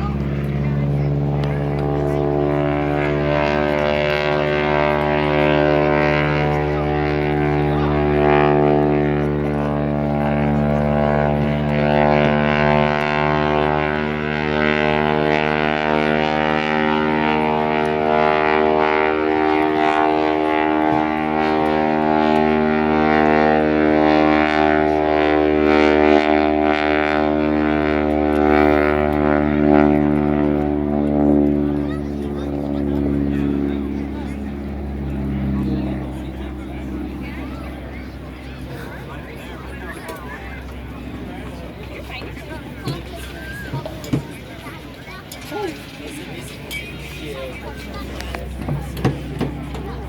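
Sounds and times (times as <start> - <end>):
aircraft engines droning: 0.0 - 50.0.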